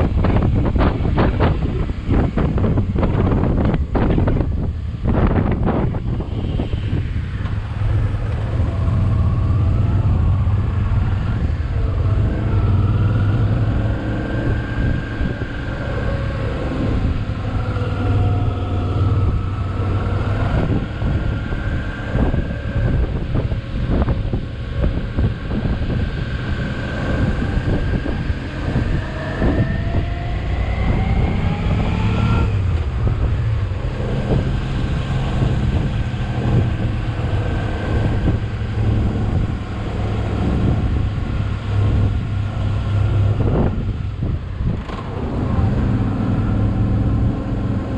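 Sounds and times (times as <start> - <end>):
wind rumble on microphone: 0.0 - 47.9.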